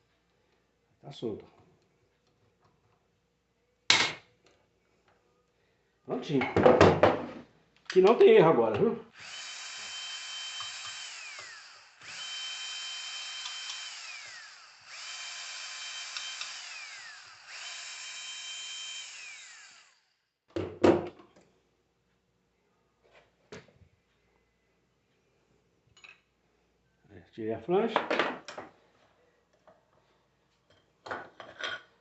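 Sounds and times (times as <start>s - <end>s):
electric drill whining: 9.1s - 20.3s.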